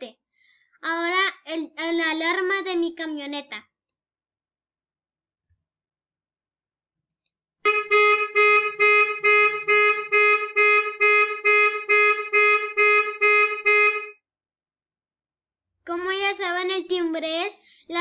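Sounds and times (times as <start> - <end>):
car alarm horn honking: 7.7 - 14.2.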